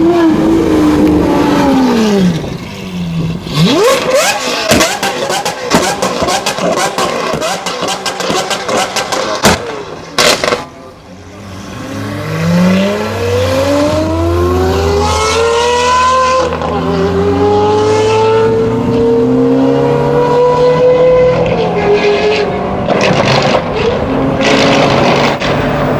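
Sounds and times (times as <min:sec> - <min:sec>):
car engine accelerating: 0:00.0 - 0:25.9.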